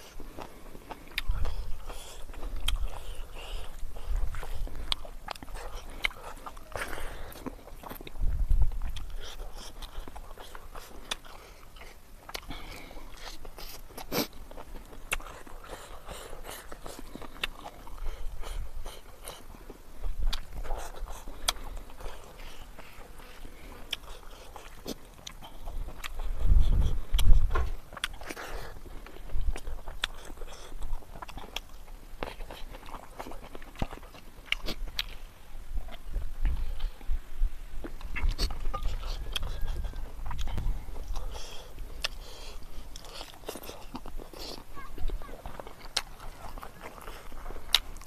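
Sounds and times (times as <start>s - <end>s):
close chewing: 0.0s - 48.0s
wet mouth smacks and clicks: 2.4s - 3.0s, 23.9s - 28.4s, 42.0s - 42.2s.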